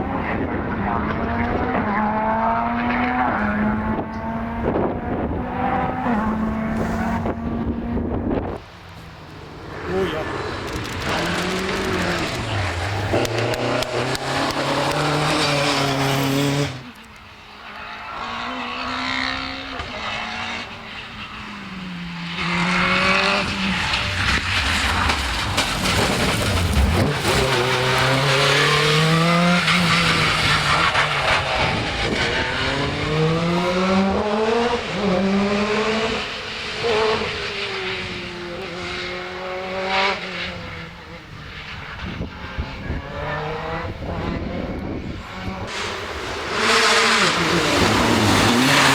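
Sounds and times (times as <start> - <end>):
rally car engines revving: 0.0 - 48.9.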